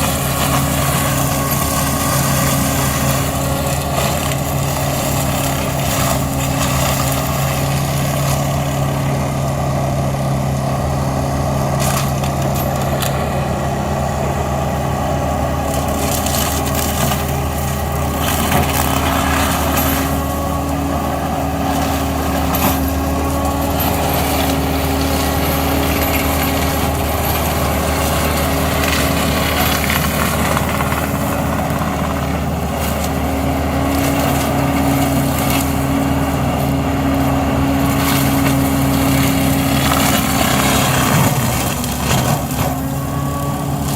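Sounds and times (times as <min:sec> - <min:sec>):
tractor engine drone: 0:00.0 - 0:43.9.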